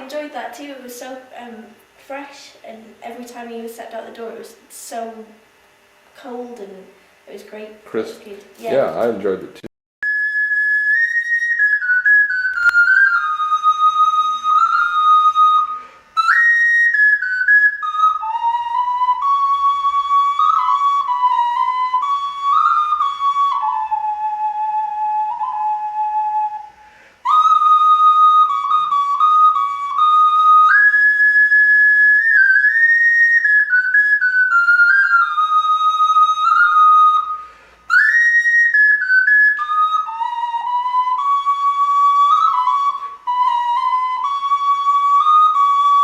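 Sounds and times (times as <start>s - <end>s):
clay whistle melody: 10.0s - 46.0s.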